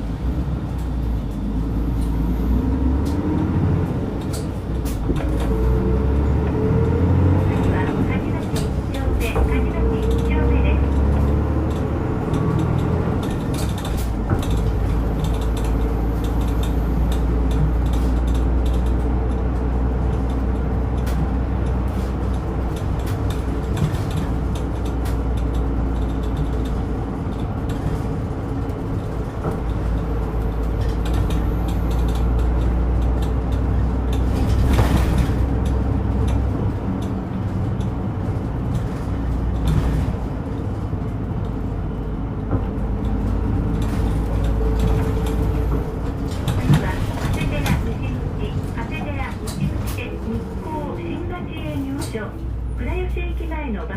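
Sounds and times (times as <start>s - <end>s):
bus engine drone: 0.0s - 53.9s
road and body noise: 0.0s - 53.9s.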